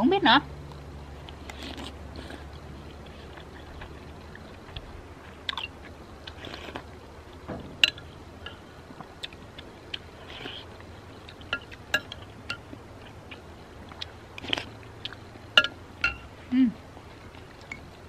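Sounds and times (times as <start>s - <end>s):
person chewing: 1.2s - 15.3s.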